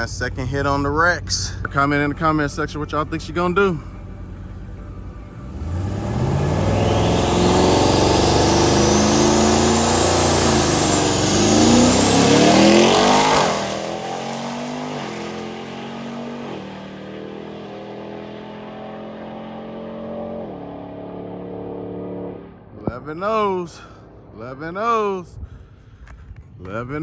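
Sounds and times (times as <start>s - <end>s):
truck engine accelerating hard: 0.0s - 23.0s
high whine: 2.5s - 16.3s.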